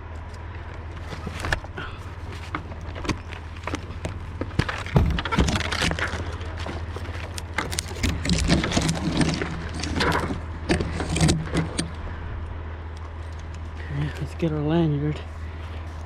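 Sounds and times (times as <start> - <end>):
low engine hum: 0.0 - 16.0
scraping and rubbing on limb: 0.8 - 11.9
climbing hardware jangling: 2.5 - 12.0.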